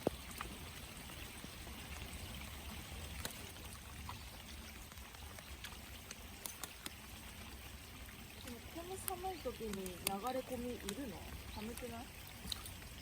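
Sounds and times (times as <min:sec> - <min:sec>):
water pouring into river: 0:00.0 - 0:13.0
light clicks: 0:09.0 - 0:11.0.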